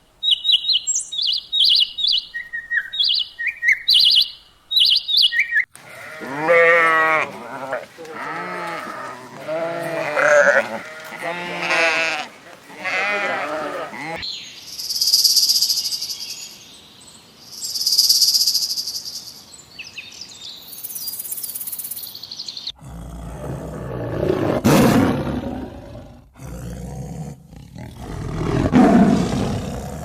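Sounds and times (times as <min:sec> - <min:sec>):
large animal roaring: 0:22.8 - 0:30.0.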